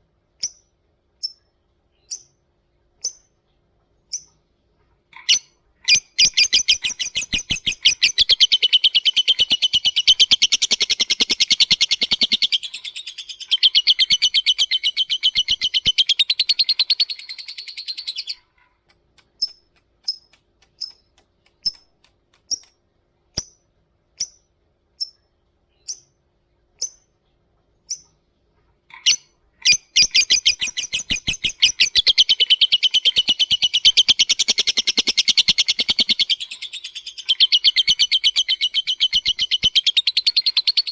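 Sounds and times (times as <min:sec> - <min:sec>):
bird sharp chirps: 0:05.2 - 0:18.5, 0:29.0 - 0:40.9
bird high-pitched trill: 0:05.3 - 0:18.4, 0:29.1 - 0:40.9.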